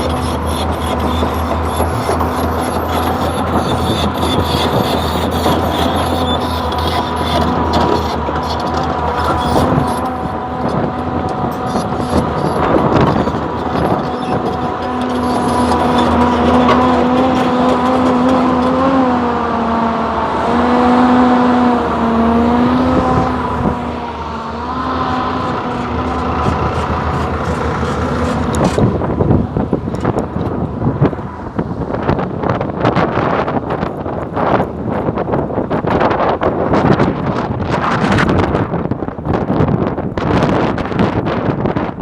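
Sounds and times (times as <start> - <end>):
clatter and knocks: 0.0 - 19.0
hydraulic whine: 0.0 - 35.1
excavator diesel engine running: 0.0 - 39.4.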